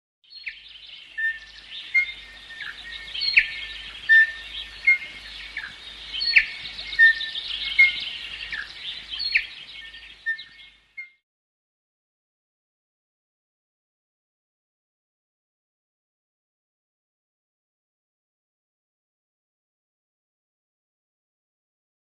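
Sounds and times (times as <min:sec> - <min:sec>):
many birds chirping: 0:00.3 - 0:11.2.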